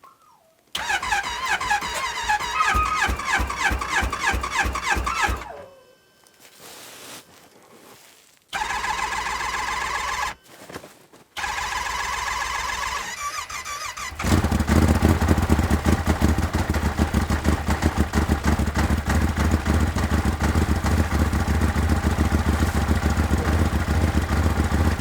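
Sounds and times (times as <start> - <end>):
snowmobile engine running: 14.1 - 25.0.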